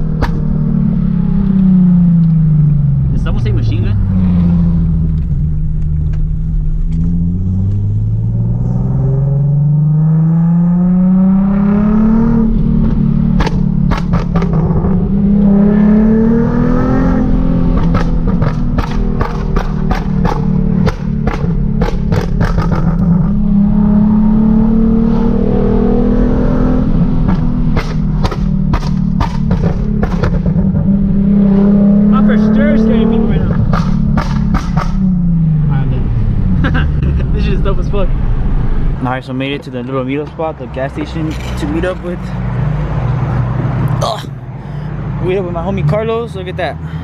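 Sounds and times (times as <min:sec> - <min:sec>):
exhaust pops and crackles: 0:00.0 - 0:00.6, 0:05.0 - 0:07.8, 0:12.6 - 0:15.5, 0:17.7 - 0:23.4, 0:27.2 - 0:30.9, 0:32.2 - 0:35.2
car engine accelerating: 0:00.0 - 0:47.0.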